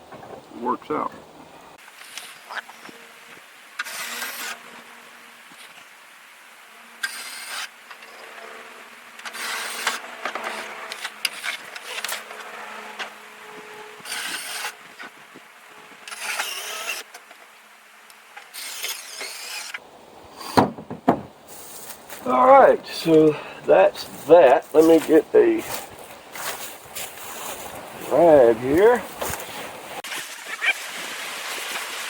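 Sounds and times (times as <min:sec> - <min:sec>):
cordless drill driving screws: 0:03.8 - 0:04.6, 0:09.2 - 0:12.4, 0:14.0 - 0:14.8, 0:16.0 - 0:17.1, 0:18.5 - 0:19.8
scraping and handling: 0:20.4 - 0:30.0.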